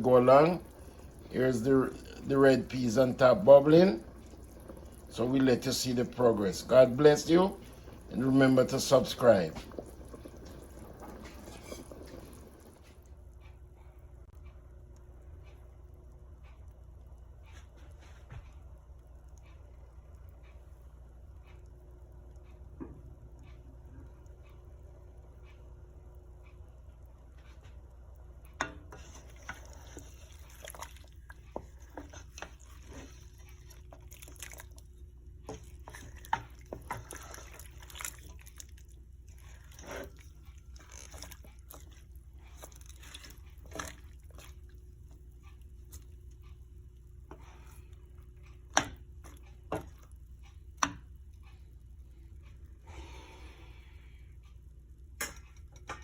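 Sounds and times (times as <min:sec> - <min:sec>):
soup bubbling in pot: 0:00.0 - 0:13.4, 0:27.8 - 0:51.2
steady low hum: 0:00.0 - 0:56.0.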